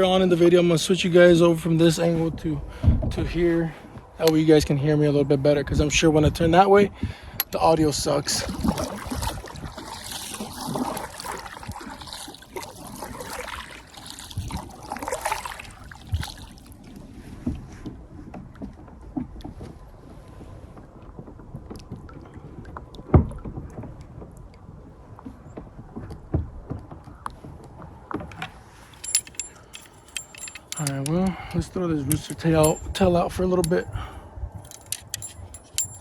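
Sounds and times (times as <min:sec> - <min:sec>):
paddle splashing through water: 0:08.7 - 0:16.8.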